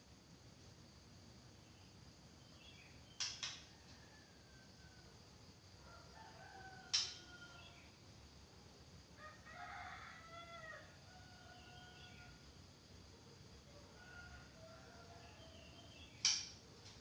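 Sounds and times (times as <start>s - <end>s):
rooster crowing: 3.7s - 5.1s, 5.8s - 7.8s, 9.1s - 12.4s, 13.7s - 16.0s.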